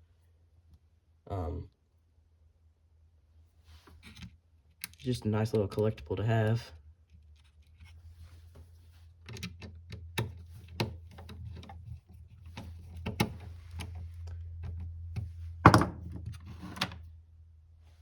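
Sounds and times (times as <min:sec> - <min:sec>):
objects clicking and knocking on workbench: 0:14.6 - 0:16.9.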